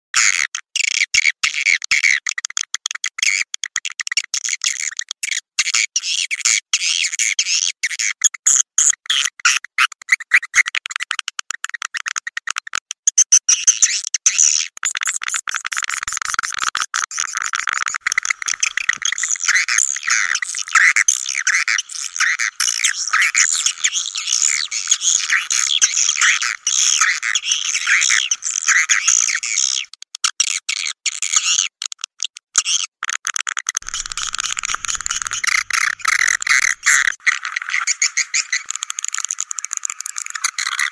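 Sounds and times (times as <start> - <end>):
swiftlets twittering and chirping: 18.0 - 28.6, 33.8 - 40.9
rapid clicks: 33.8 - 37.2.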